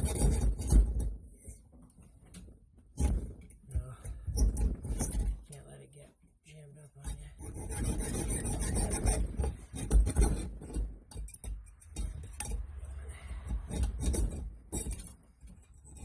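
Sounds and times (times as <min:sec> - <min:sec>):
hand filing rasping: 0:00.0 - 0:01.0, 0:07.1 - 0:16.0.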